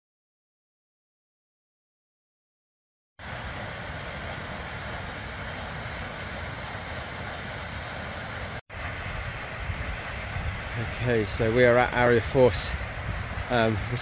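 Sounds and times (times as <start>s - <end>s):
waterfall rushing: 3.2s - 14.0s.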